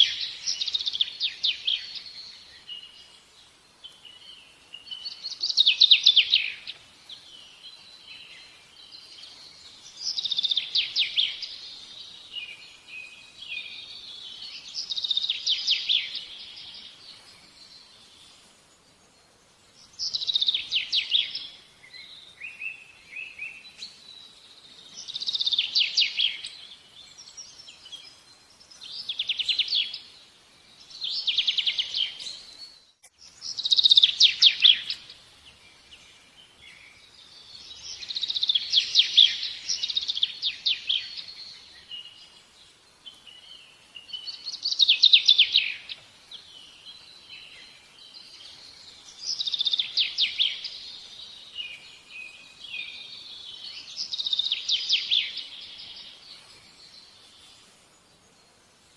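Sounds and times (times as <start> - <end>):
soft bird chirps: 0.0 - 58.9
songbird trilling: 30.9 - 35.2, 49.1 - 56.2.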